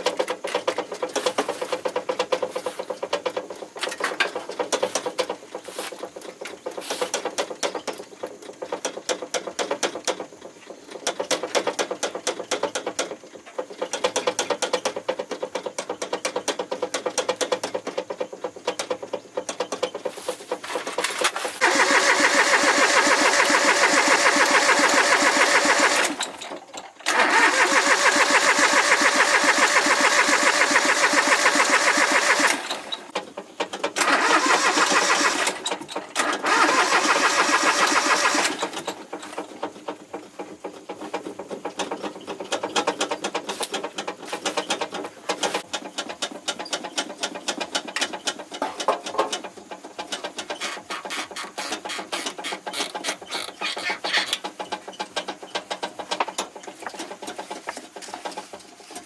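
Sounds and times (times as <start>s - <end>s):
engine running with uneven pulsing: 21.6s - 33.2s, 34.0s - 39.2s.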